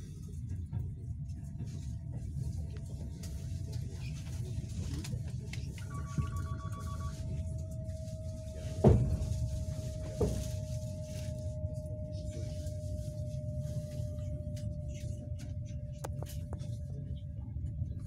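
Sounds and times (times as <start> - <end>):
train rumble inside carriage: 0.0 - 18.0
thin steady whine: 5.6 - 17.2.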